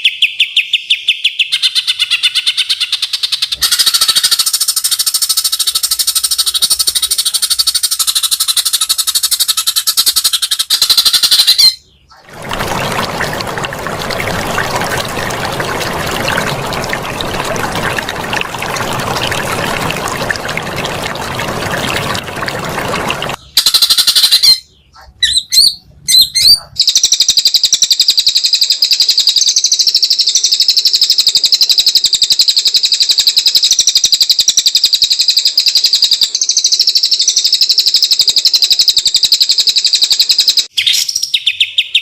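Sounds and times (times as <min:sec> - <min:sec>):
songbird trill: 0:00.0 - 0:13.6.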